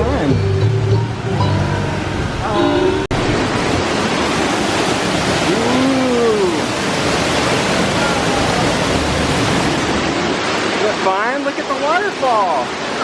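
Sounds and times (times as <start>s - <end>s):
waterfall rushing: 0.2s - 13.0s.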